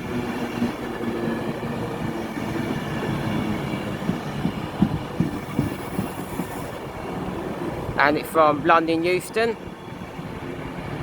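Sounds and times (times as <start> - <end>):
electric train running rumble: 0.0 - 11.0.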